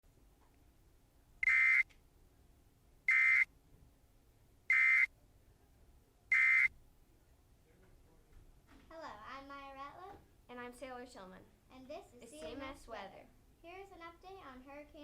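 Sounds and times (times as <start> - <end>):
short electronic beeps: 1.4 - 1.8, 3.1 - 3.5, 4.7 - 5.1, 6.3 - 6.7.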